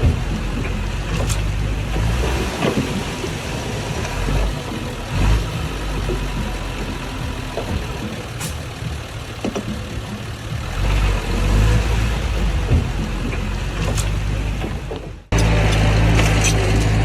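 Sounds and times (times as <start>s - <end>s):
scattered knocks: 0.0s - 15.4s
bulldozer diesel engine running: 0.0s - 17.0s.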